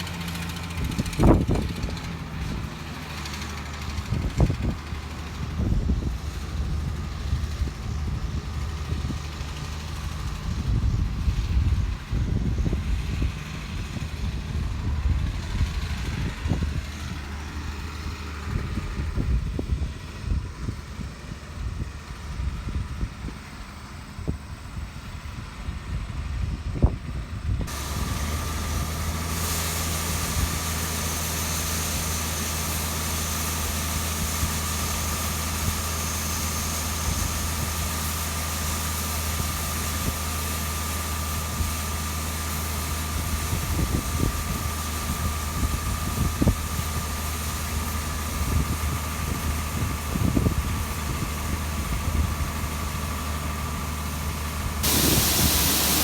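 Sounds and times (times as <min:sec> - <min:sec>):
engine drone: 0:00.0 - 0:56.0
machinery rumble with knocks: 0:54.5 - 0:56.0.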